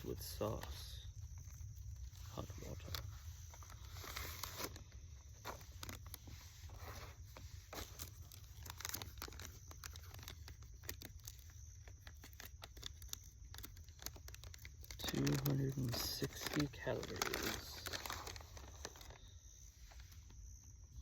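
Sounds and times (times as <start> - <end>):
plastic pouches crinkling: 0.0 - 20.4.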